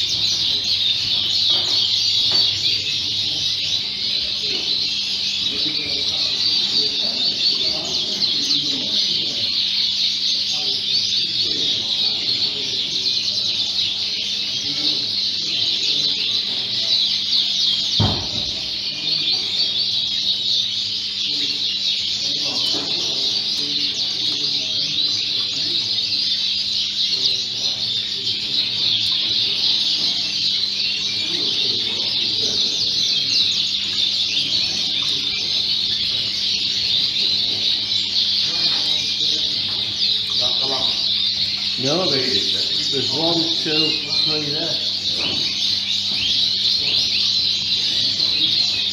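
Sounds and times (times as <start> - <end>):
canaries singing: 0.0 - 48.9
thump: 18.0 - 18.6.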